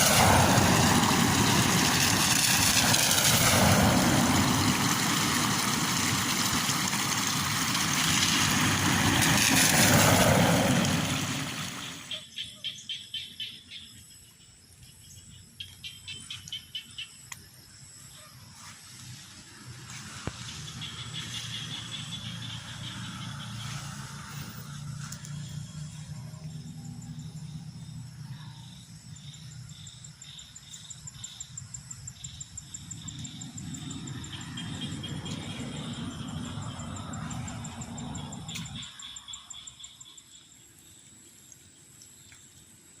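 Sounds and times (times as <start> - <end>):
rain: 0.0 - 12.1
rapid chirping pulses: 20.3 - 28.1, 28.8 - 40.4.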